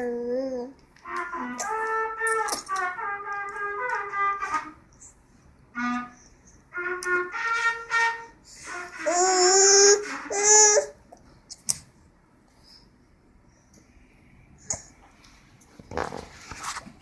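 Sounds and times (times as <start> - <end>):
baby babbling: 0.0 - 0.8, 9.0 - 11.0.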